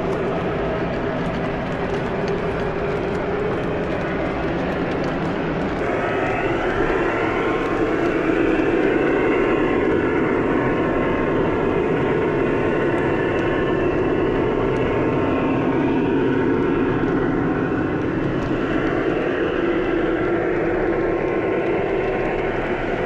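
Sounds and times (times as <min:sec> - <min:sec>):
model train wheels rumbling on rails: 0:00.0 - 0:23.0
model train motor hum: 0:05.7 - 0:23.0.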